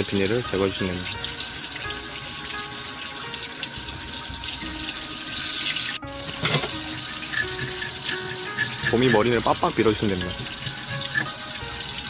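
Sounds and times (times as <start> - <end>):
tap water running into sink: 0.0 - 12.0
hand rubbing fish head: 5.4 - 12.0.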